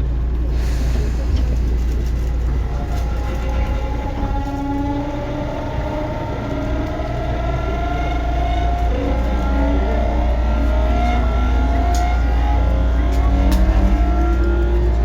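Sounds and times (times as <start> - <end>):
electric train rumble: 0.0 - 15.0
traction motor whine: 1.2 - 15.0.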